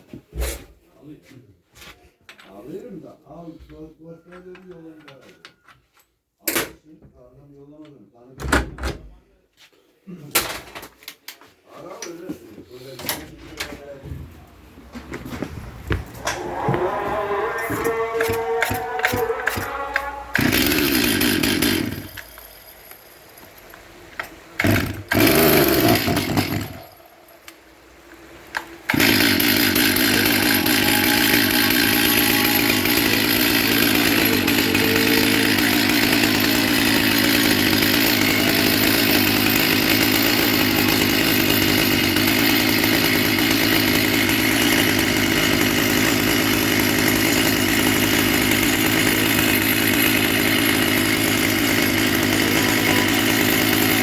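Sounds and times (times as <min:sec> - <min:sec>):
chainsaw engine running: 0:15.8 - 0:27.4, 0:28.6 - 0:54.0.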